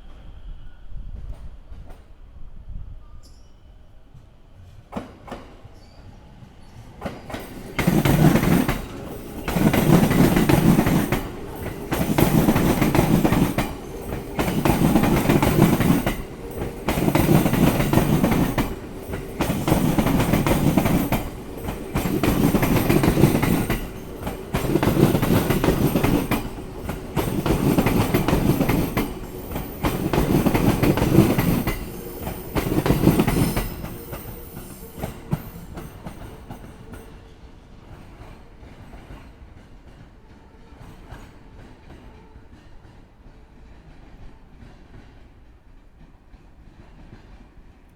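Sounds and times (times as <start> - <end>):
train clattering over rail joints: 7.0 - 37.1.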